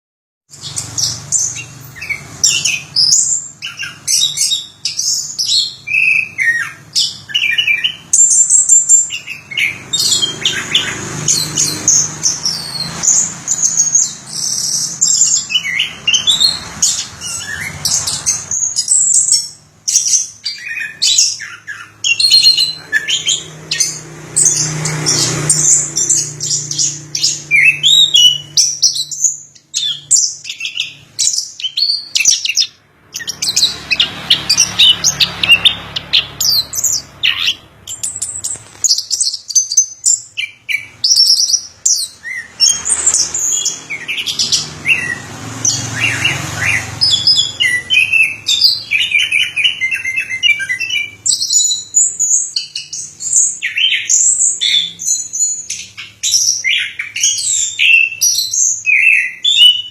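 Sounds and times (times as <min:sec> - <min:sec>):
thrush singing: 0:40.0 - 0:59.9.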